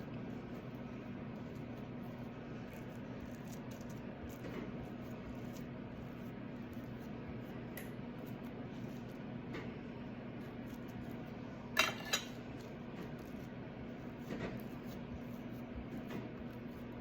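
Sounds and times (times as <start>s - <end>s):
steady low hum: 0.0s - 17.0s
kitchenware clinking: 11.8s - 12.4s.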